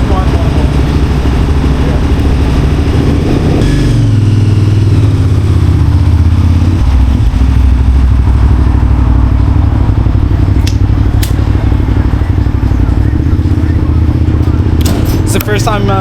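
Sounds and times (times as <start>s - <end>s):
motorcycle engine at low revs: 0.0s - 16.0s
sharp click: 10.6s - 11.4s, 14.8s - 15.5s.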